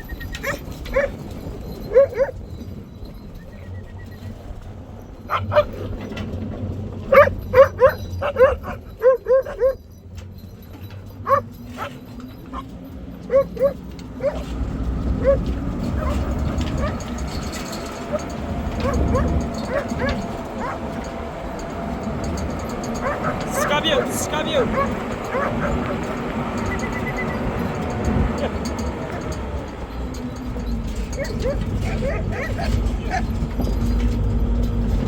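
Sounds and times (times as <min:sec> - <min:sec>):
dog barking in high yips: 0:00.1 - 0:01.2, 0:01.8 - 0:02.4, 0:05.3 - 0:05.9, 0:07.1 - 0:09.9, 0:11.2 - 0:14.5, 0:15.2 - 0:21.1, 0:22.8 - 0:27.4, 0:31.2 - 0:33.4.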